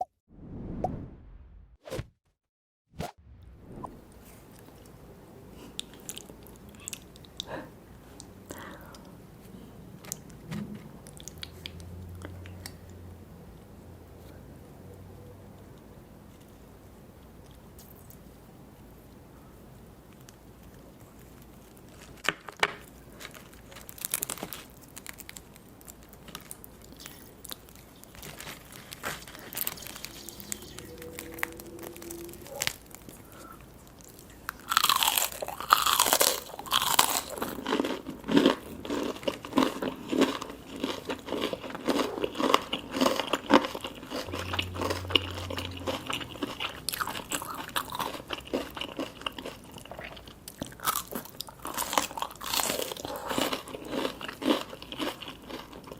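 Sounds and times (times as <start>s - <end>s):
crunchy eating and chewing: 20.0s - 55.9s.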